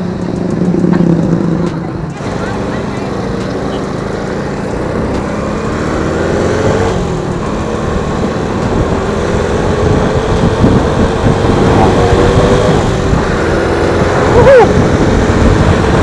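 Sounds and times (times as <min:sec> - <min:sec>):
motorcycle engine accelerating: 0:00.0 - 0:16.0
wind on microphone: 0:06.6 - 0:16.0.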